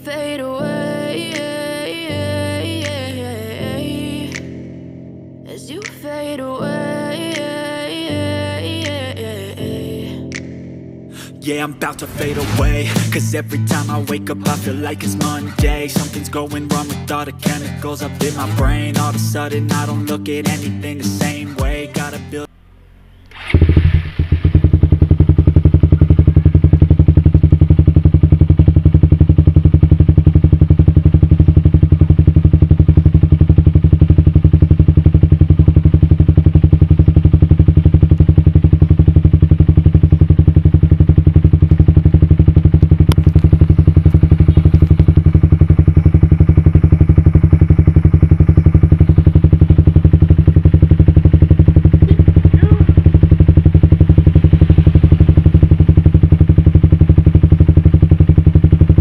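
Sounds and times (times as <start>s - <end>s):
motorcycle engine idling: 12.4s - 59.0s.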